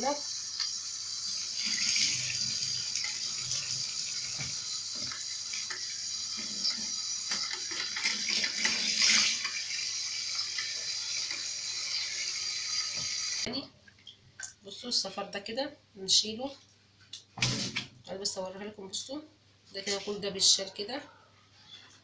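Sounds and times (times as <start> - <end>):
tap water splashing into sink: 1.8 - 9.6.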